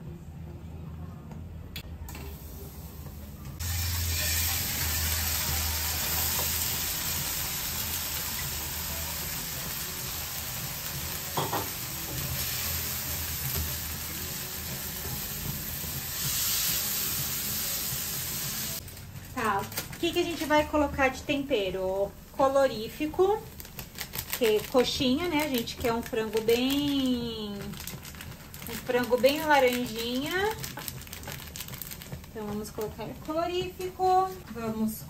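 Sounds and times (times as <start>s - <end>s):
onion sizzling in oil: 3.6s - 18.9s.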